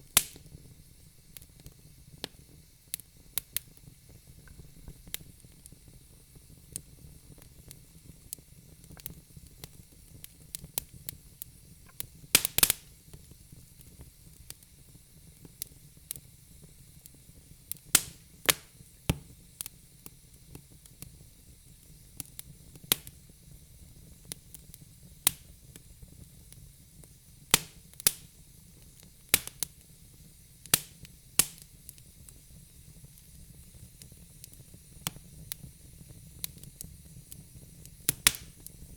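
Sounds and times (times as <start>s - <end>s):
low rumble of flames: 0.0s - 38.9s
logs crackling and popping: 0.1s - 0.6s, 11.9s - 12.9s, 17.8s - 19.2s, 28.9s - 29.7s, 30.6s - 32.1s, 37.8s - 38.9s.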